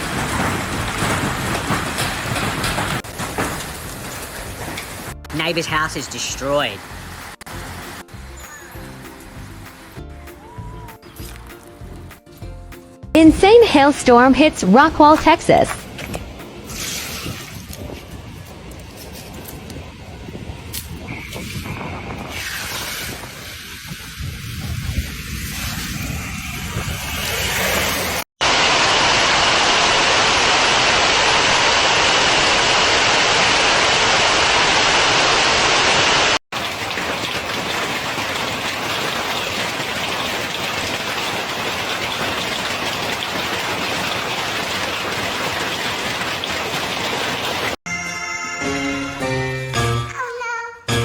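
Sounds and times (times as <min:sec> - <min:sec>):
hail and heavy rain: 0:00.0 - 0:07.3, 0:28.4 - 0:47.8.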